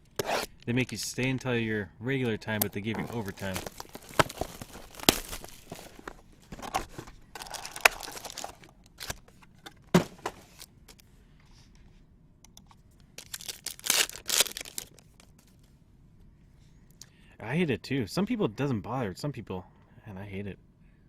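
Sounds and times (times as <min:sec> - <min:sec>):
wrappers tearing and crinkling: 0:02.6 - 0:09.3, 0:13.2 - 0:15.4.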